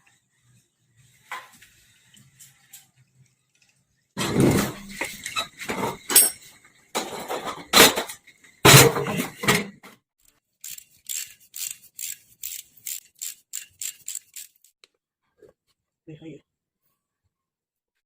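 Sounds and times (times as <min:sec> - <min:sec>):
metal parts clanking: 0:04.2 - 0:09.8.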